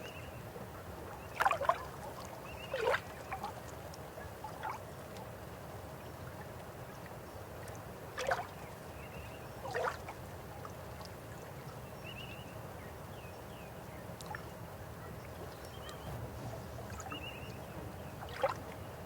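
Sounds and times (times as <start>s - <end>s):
river water flowing: 0.8s - 11.9s, 14.1s - 19.0s
water splashes: 1.2s - 5.3s, 7.6s - 8.7s, 9.6s - 11.7s, 15.3s - 19.0s.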